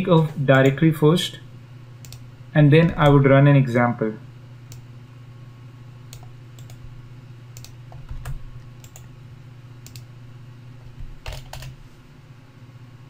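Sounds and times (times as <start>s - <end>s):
steady low hum: 0.0s - 13.0s
keyboard typing clicks: 2.0s - 2.2s, 6.1s - 6.8s, 7.6s - 9.1s, 9.8s - 10.1s, 10.8s - 11.8s.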